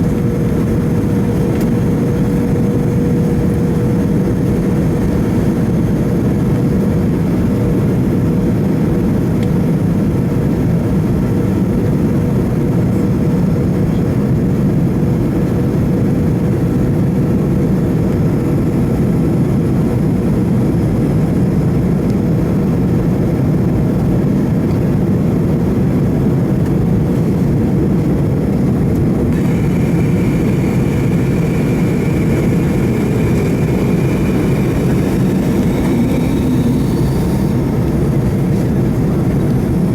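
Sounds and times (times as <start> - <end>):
airliner engine drone in cabin: 0.0 - 39.9
faint steady high tone: 29.4 - 38.7.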